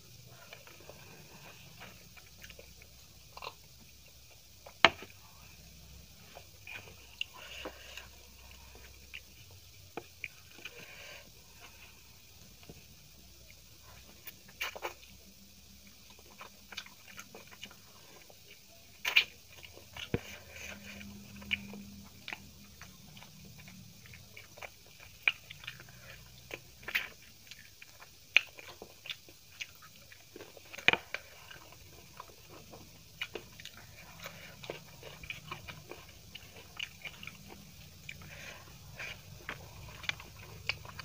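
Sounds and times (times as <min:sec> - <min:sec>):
chewing and mouth smacks: 0:15.9 - 0:41.0.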